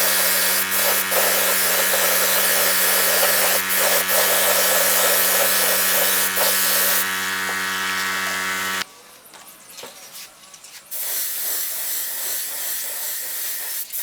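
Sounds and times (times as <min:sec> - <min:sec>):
workshop machine humming: 0:00.0 - 0:08.8.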